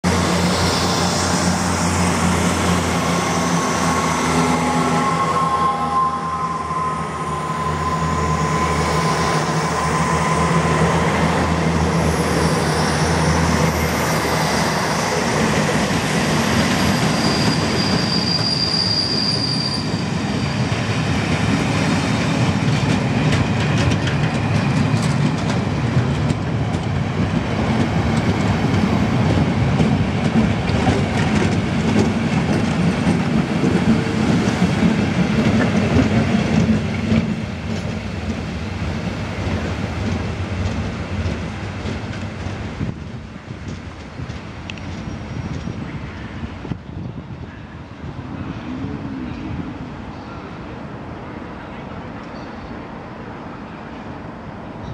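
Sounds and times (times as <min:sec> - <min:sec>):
train wheels clattering on rails: 0:11.9 - 0:46.8.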